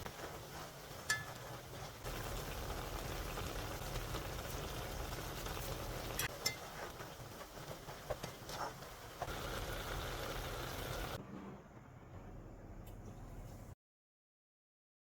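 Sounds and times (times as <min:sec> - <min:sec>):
broth boiling and bubbling: 0:00.0 - 0:12.0.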